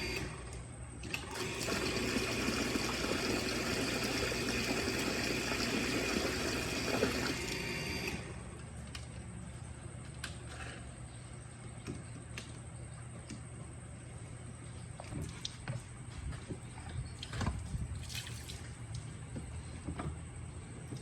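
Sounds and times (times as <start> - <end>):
water pump motor hum: 0.0 - 8.9.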